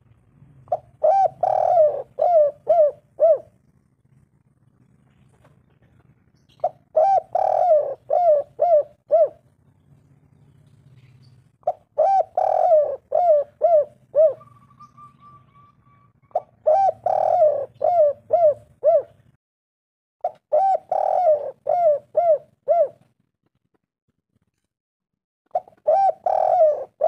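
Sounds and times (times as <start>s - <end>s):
dove cooing: 0.6s - 3.9s, 4.8s - 9.6s, 10.9s - 19.4s, 20.2s - 23.1s, 25.5s - 27.0s.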